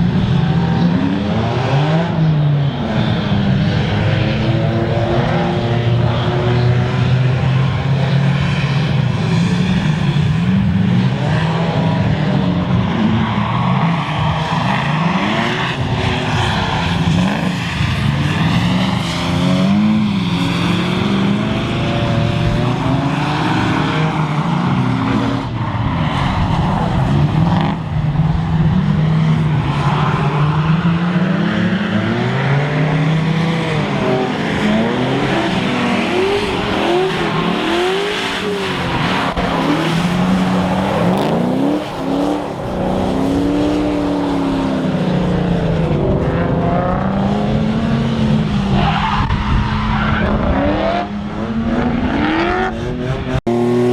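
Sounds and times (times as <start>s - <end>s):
car engines revving: 0.0s - 53.9s.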